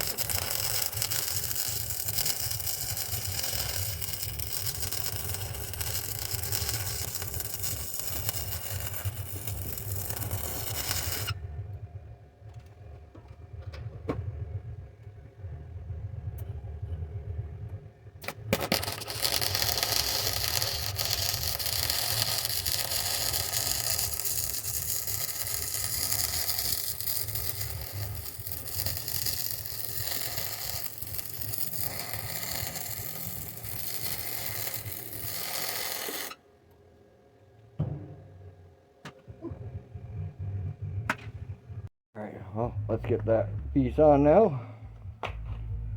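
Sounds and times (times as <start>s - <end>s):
welder arc crackling and hissing: 0.0s - 11.4s, 18.2s - 36.4s
low hum: 4.2s - 18.6s, 36.9s - 45.9s.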